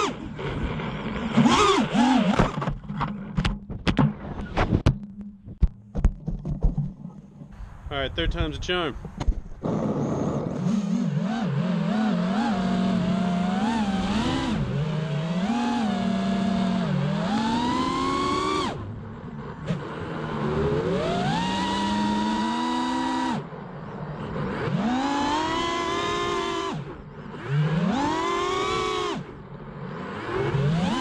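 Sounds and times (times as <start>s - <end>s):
quadcopter motors whining: 0.0s - 2.6s, 9.6s - 18.9s, 19.7s - 23.4s, 24.2s - 31.0s.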